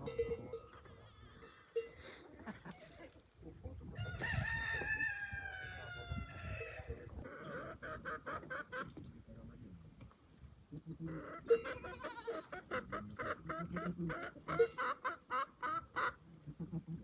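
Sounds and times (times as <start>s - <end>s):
rooster crowing: 4.0s - 6.9s.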